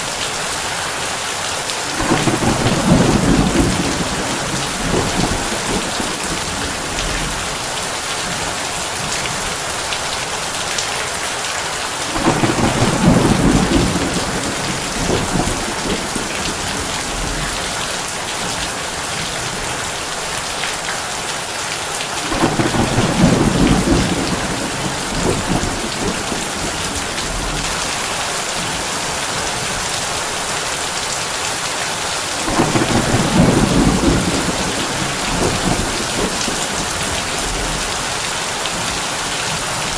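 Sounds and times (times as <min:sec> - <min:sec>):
heavy rain on a tin roof: 0:00.0 - 0:39.9
low thunder rumbles: 0:01.9 - 0:09.9, 0:12.0 - 0:19.7, 0:22.2 - 0:29.7, 0:32.4 - 0:39.0.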